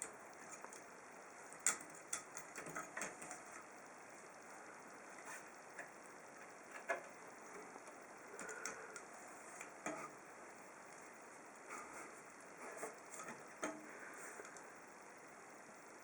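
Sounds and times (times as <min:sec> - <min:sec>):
light clicks and taps: 0:01.5 - 0:03.7, 0:05.4 - 0:10.1.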